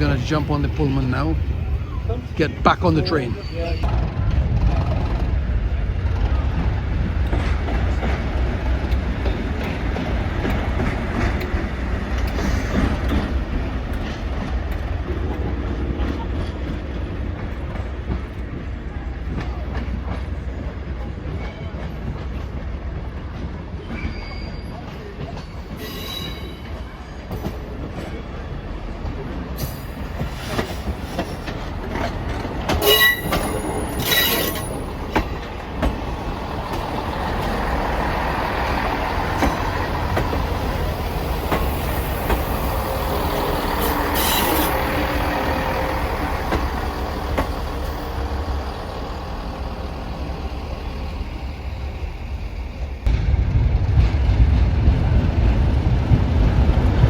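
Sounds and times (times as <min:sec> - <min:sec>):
train wheels rumbling on rails: 0:00.0 - 0:57.0
high wheel squeals: 0:23.8 - 0:25.0, 0:25.8 - 0:26.8, 0:32.7 - 0:35.4, 0:41.2 - 0:49.5.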